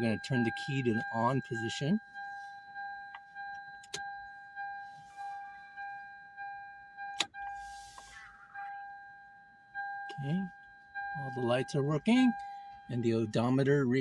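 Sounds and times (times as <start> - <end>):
dashboard warning chime: 0.0 - 14.0.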